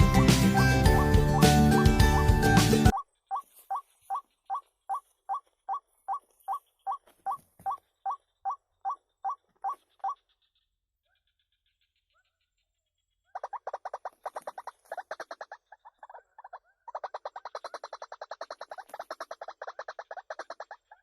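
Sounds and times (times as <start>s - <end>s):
waterhen calling kwak notes: 0.0s - 10.3s.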